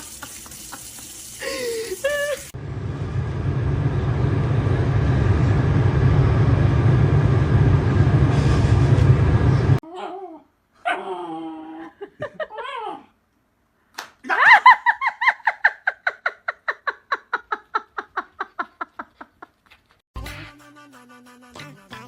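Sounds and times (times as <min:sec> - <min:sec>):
person laughing hard: 0:00.0 - 0:02.5, 0:11.8 - 0:13.0, 0:14.2 - 0:19.6.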